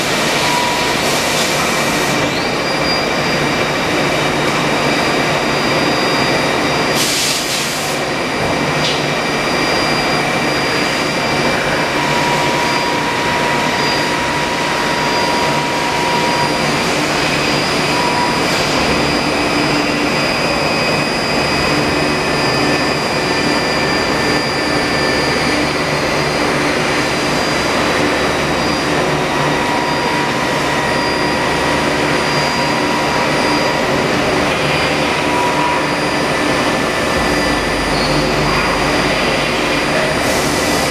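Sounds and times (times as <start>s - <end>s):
high steady whines: 0.0s - 40.9s
lathe machine hiss and hum: 0.0s - 40.9s
mid-pitched tone: 32.4s - 40.9s.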